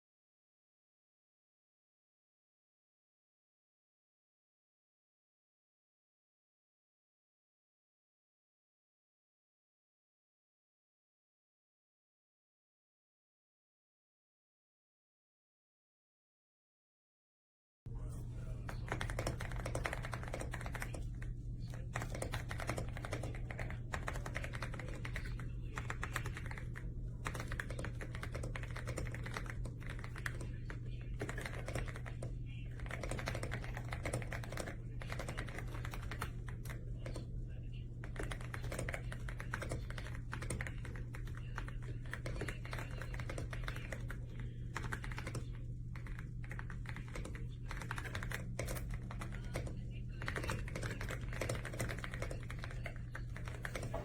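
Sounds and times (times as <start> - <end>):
steady low hum: 17.9 - 54.0.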